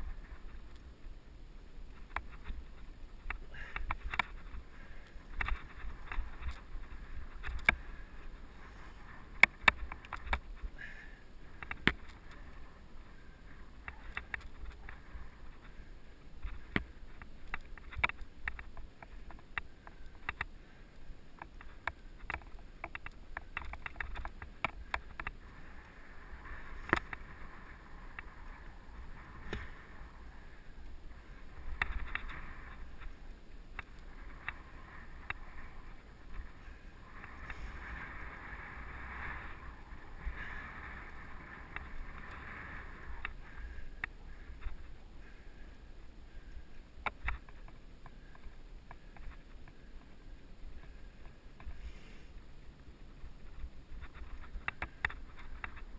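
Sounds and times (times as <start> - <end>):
tyres on dirt and gravel: 0.0 - 55.9
bike rattling over bumps: 1.9 - 20.5, 21.4 - 45.4.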